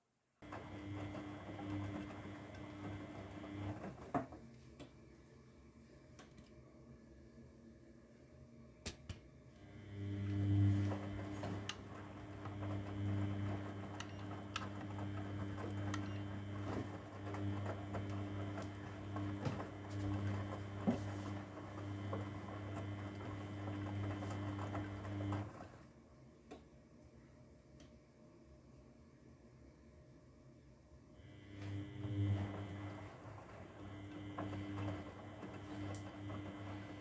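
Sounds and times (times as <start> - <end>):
washing machine humming: 0.4 - 4.5, 9.6 - 26.0, 31.2 - 37.0.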